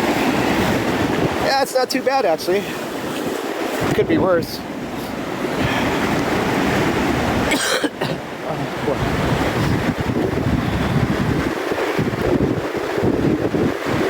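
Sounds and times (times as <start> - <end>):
ocean surf washing up beach: 0.0 - 14.0
wind buffeting microphone: 0.0 - 14.0.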